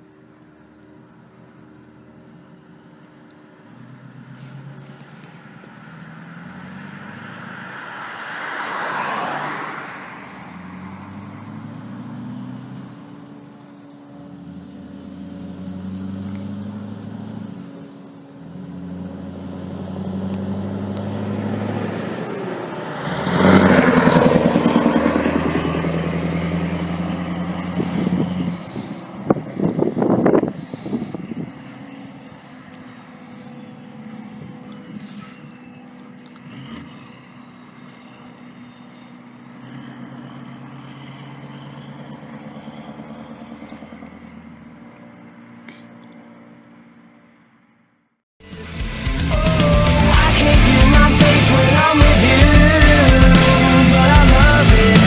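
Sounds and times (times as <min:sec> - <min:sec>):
truck diesel engine changing gears: 0:00.0 - 0:55.0.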